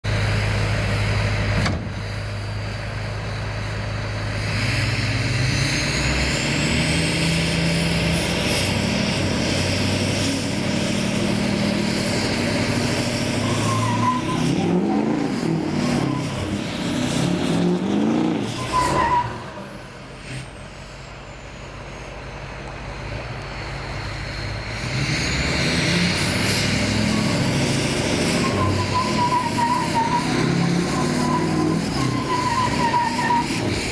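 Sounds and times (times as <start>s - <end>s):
truck engine running hard: 0.0s - 33.9s
high whistle rising: 9.5s - 19.7s, 27.0s - 33.8s.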